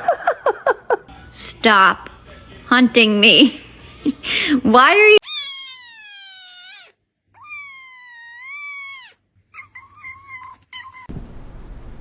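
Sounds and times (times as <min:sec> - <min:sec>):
cat meowing: 0:05.2 - 0:11.1.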